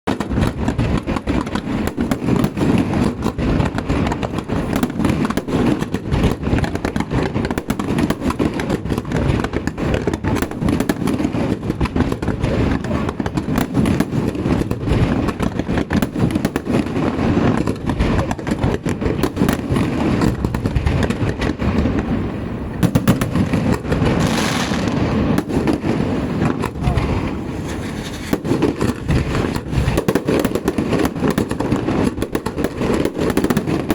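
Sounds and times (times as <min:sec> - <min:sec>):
fireworks bangs and crackles: 0:00.0 - 0:33.9
hissing rush: 0:24.1 - 0:30.0.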